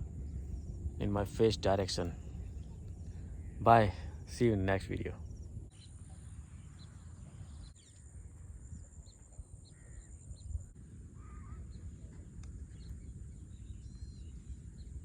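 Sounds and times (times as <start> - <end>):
birds calling: 0.0 - 5.6.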